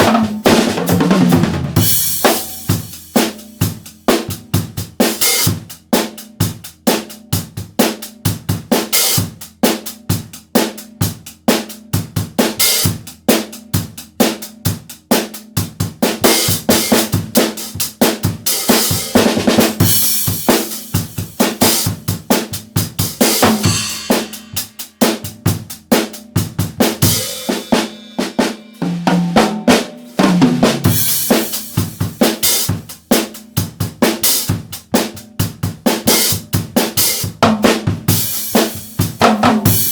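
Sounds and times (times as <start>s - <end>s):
drum kit played solo: 0.0s - 39.9s
cymbals: 23.0s - 25.3s, 27.0s - 32.7s.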